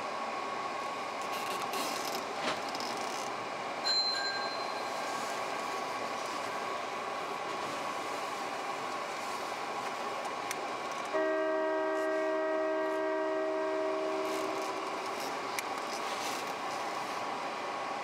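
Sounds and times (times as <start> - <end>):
train wheels rumbling: 0.9 - 18.0.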